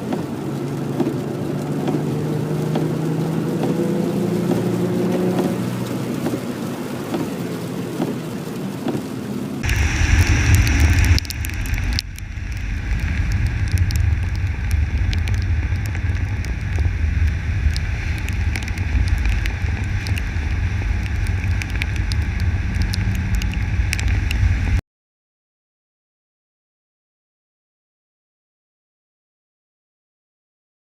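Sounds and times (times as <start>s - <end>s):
car engine at low revs: 0.0s - 24.8s
heavy rain striking camera: 0.0s - 24.8s
low rumble: 9.6s - 24.8s.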